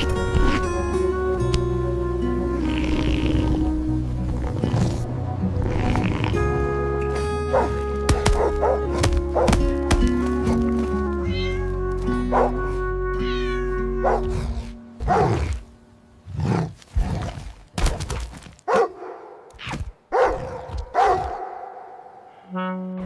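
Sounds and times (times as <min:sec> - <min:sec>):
background music with held notes: 0:00.0 - 0:16.1
cat meowing: 0:11.3 - 0:11.8, 0:13.2 - 0:13.7.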